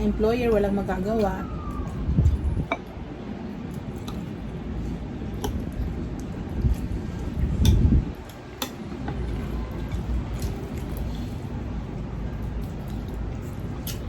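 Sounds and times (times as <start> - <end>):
chewing and mouth noises: 3.6 - 14.0.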